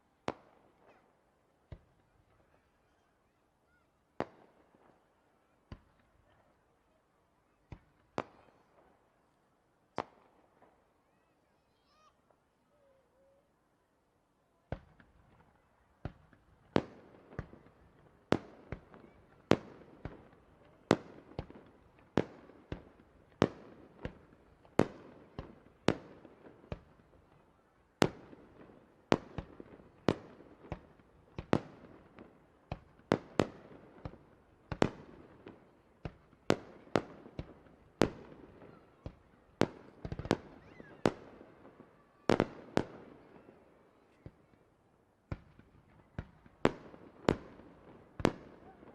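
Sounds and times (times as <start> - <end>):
fireworks bursting: 28.0 - 44.6.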